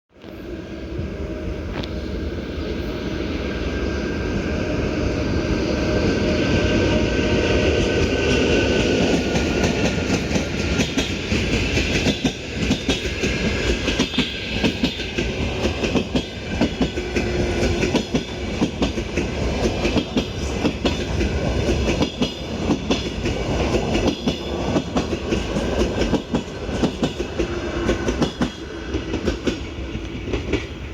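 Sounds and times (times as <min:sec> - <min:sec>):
electric locomotive whine: 0:00.2 - 0:30.9
train wheels clattering on rail joints: 0:07.7 - 0:30.9.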